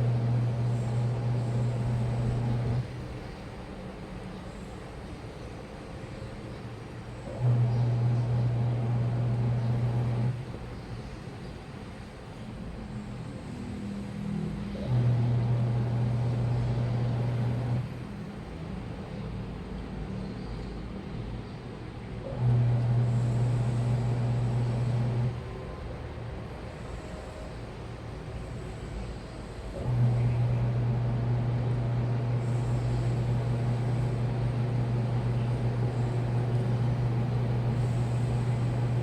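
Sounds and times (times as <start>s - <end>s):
washing machine motor humming: 0.0s - 4.0s, 7.2s - 10.8s, 12.9s - 21.4s, 22.2s - 39.0s
washing machine low rumble: 0.0s - 39.0s.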